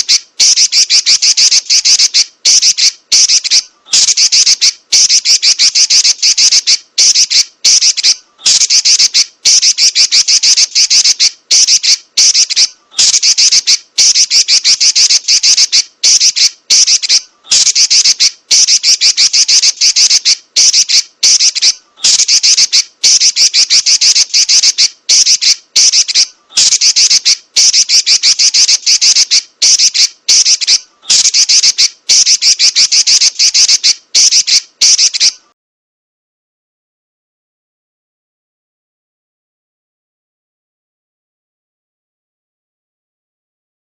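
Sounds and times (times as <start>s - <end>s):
bird chattering trill: 0.0s - 35.5s.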